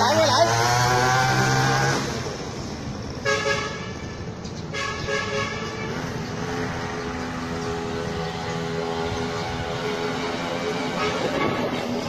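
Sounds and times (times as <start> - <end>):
grass-cutter engine running: 0.0 - 2.4
horn toots: 10.9 - 12.0.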